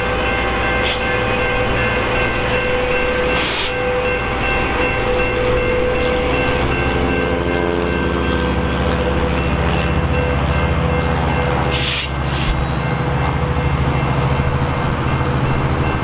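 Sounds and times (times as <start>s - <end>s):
train wheels whining: 0.0s - 7.4s, 11.3s - 16.0s
diesel locomotive engine hum: 0.0s - 16.0s
short burst of hiss: 11.7s - 12.6s.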